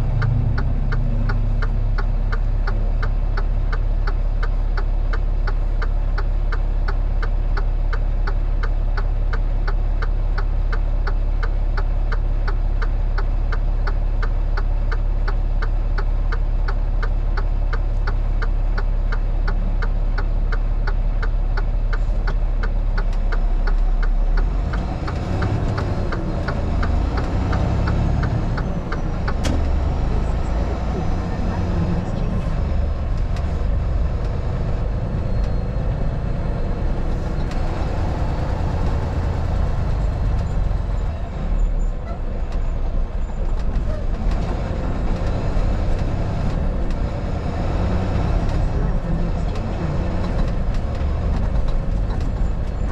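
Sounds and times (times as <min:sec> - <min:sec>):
engine humming: 0:00.0 - 0:52.9
road noise: 0:00.0 - 0:52.9
turn signal clicking: 0:00.1 - 0:36.2.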